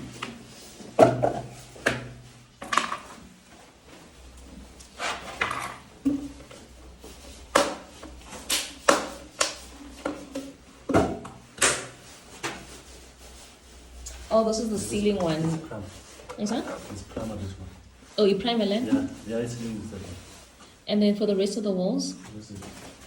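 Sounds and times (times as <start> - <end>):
objects knocking and clunking: 0.0 - 3.7, 4.4 - 12.8.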